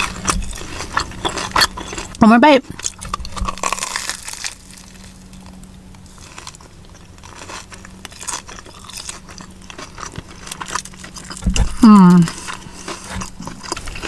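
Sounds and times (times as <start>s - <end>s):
crunching bites of crispy food: 0.0s - 14.0s.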